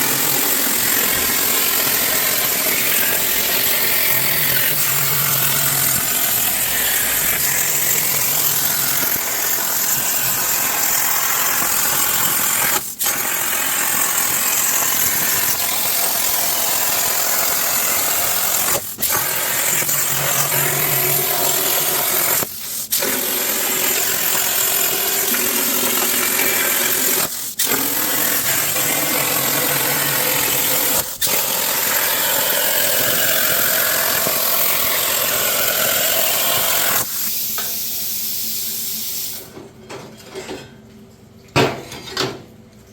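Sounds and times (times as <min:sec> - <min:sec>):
plasma cutter hissing: 0:00.0 - 0:39.5.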